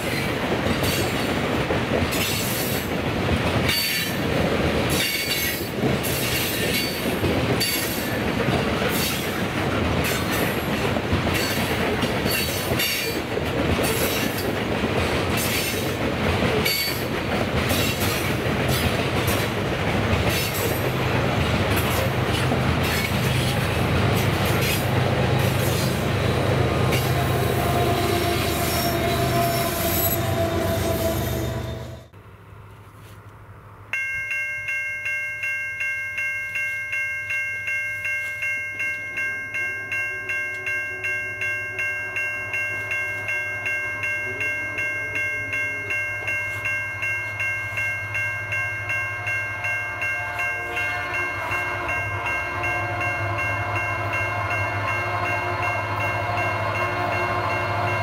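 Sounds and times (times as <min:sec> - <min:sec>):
train wheels clicking over rail joints: 0:00.0 - 0:27.2
diesel locomotive hum: 0:00.0 - 0:34.3, 0:40.2 - 0:58.0.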